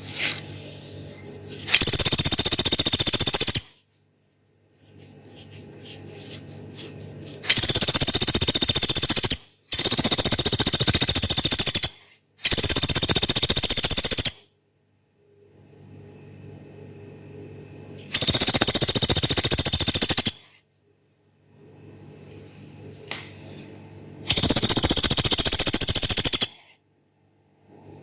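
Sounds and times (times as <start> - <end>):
woodpecker rattling trill: 1.7 - 3.8, 7.4 - 14.4, 18.2 - 20.5, 24.3 - 26.6.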